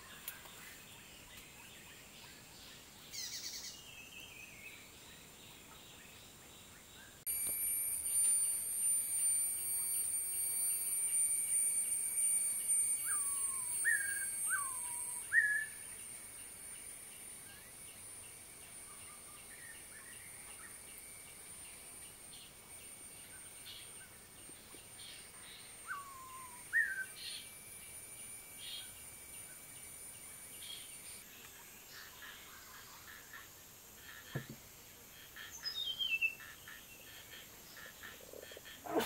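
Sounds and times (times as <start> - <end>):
high-pitched ringing: 7.3 - 31.3
bird whistling calls: 12.6 - 15.9, 25.8 - 27.4.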